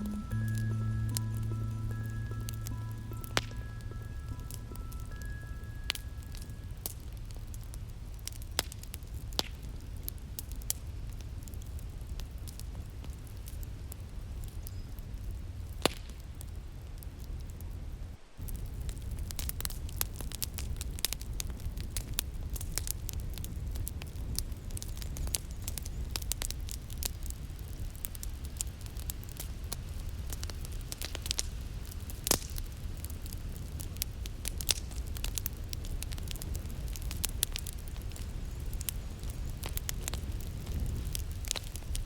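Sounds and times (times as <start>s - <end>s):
wood fire crackling: 0.0s - 42.0s.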